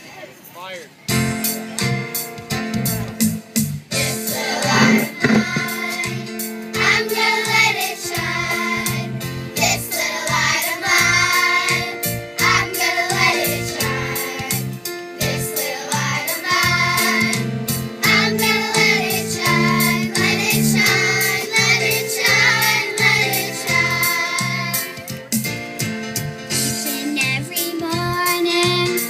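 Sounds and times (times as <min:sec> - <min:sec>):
instrumental accompaniment with bass: 0:01.1 - 0:29.0
choir singing: 0:04.0 - 0:09.1, 0:09.7 - 0:14.6, 0:15.2 - 0:17.4, 0:18.0 - 0:25.0.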